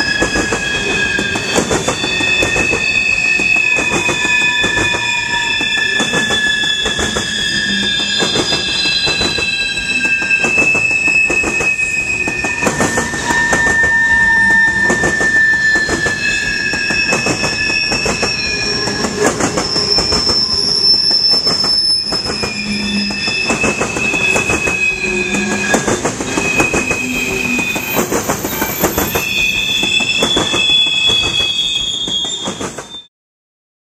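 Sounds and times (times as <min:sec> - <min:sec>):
wheels clacking on track: 0:00.0 - 0:33.0
wheels squealing on rails: 0:00.0 - 0:33.1.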